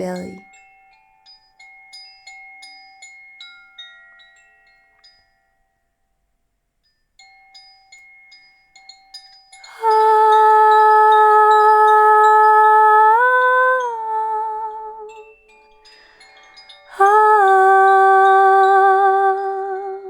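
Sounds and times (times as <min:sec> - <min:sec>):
small chimes ringing: 0:06.8 - 0:20.0.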